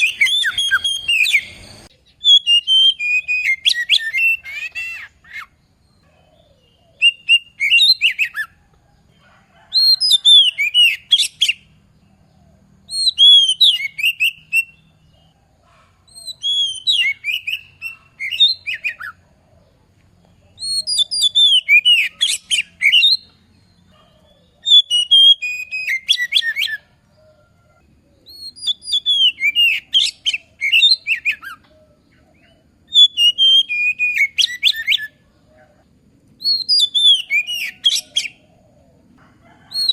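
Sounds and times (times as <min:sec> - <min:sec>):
magpie-robin singing: 0:00.0 - 0:08.5, 0:09.7 - 0:11.7, 0:12.9 - 0:15.3, 0:16.1 - 0:19.2, 0:20.5 - 0:26.9, 0:28.2 - 0:35.2, 0:36.4 - 0:38.5.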